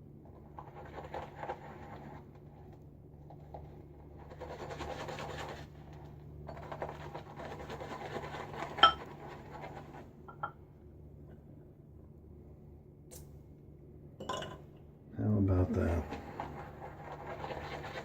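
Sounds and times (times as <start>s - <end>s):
brush clinking bowl: 8.8s - 9.0s
shaving brush swirling lather: 15.8s - 18.0s.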